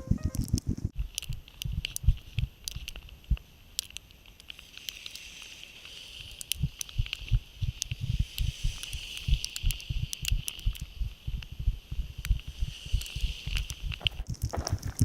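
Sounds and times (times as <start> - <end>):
wind buffeting microphone: 0.0 - 3.4, 6.5 - 15.0
snow ticking and pattering: 1.0 - 15.0
steady high hiss: 2.2 - 14.3.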